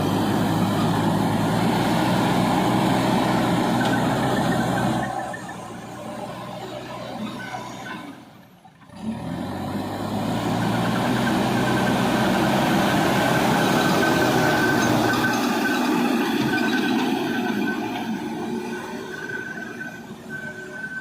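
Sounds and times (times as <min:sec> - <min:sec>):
heavy machinery diesel engine: 0:00.0 - 0:21.0.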